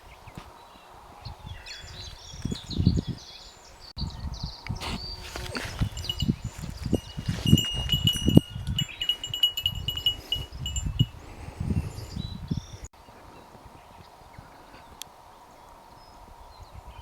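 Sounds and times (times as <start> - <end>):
small bell jingling: 5.6 - 11.2.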